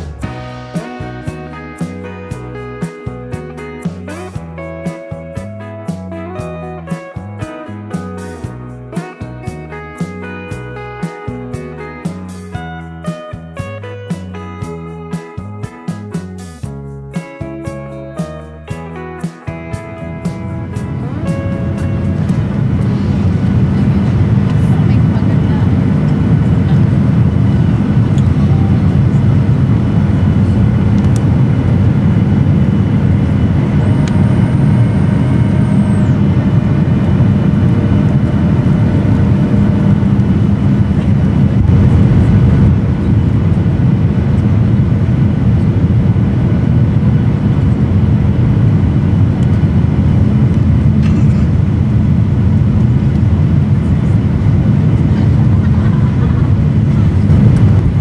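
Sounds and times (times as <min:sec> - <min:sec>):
vehicle interior rumble: 0:19.8 - 0:58.0.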